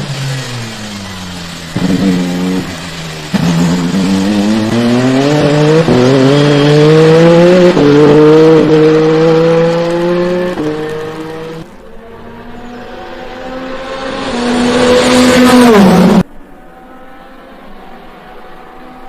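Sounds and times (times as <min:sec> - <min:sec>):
race car engine accelerating: 0:00.0 - 0:19.0.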